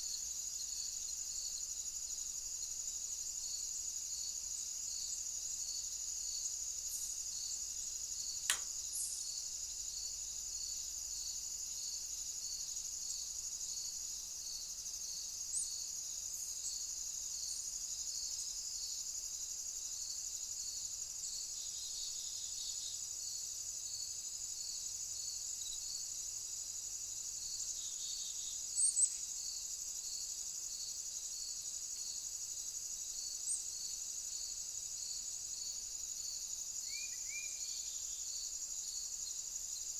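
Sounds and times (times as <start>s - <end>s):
sharp click: 8.5s - 8.8s.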